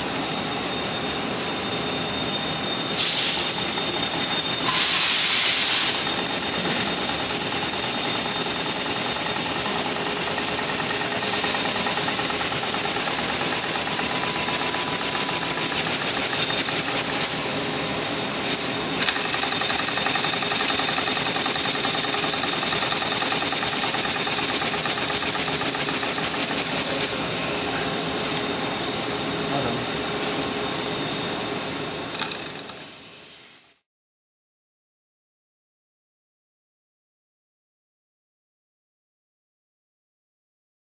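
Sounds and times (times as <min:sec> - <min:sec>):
steady hiss of air: 0:00.0 - 0:33.8.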